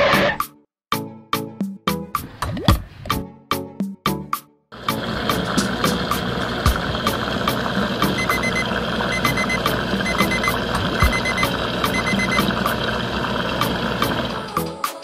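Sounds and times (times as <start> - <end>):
steady hum: 4.8 - 14.5
regular clicking beat: 8.0 - 12.8
short electronic beeps: 8.1 - 12.6.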